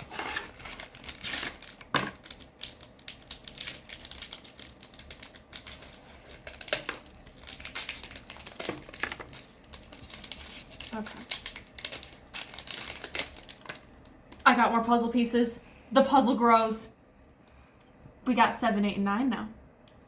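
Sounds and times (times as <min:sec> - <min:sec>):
foil card pack crinkling: 0:00.0 - 0:14.5.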